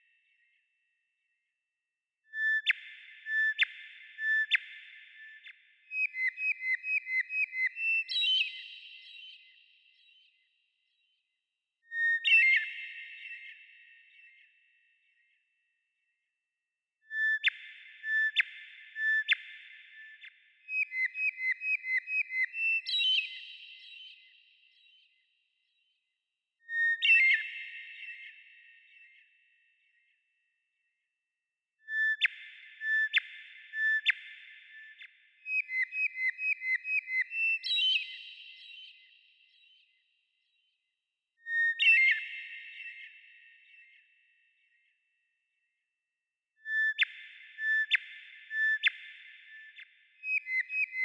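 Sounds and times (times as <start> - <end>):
songbird singing whistled notes: 2.3 - 10.4, 11.8 - 15.3, 17.1 - 25.2, 26.6 - 30.1, 31.8 - 40.7, 41.4 - 44.8, 46.6 - 51.0.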